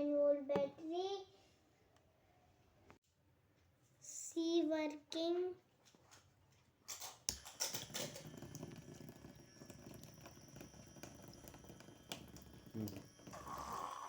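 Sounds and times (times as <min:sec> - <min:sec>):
water falling into plastic jar: 0:07.3 - 0:13.8
small water pump running: 0:07.3 - 0:14.0.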